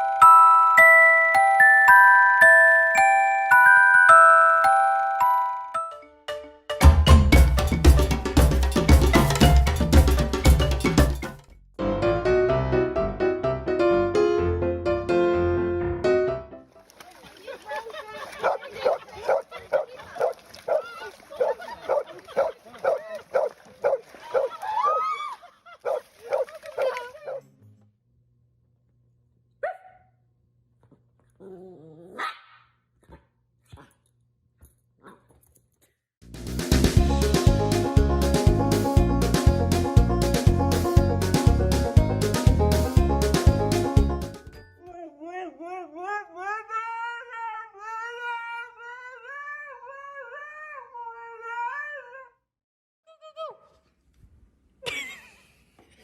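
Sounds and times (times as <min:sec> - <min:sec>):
dog barking: 0:18.4 - 0:24.6, 0:25.8 - 0:27.4, 0:29.6 - 0:30.2, 0:32.2 - 0:34.0.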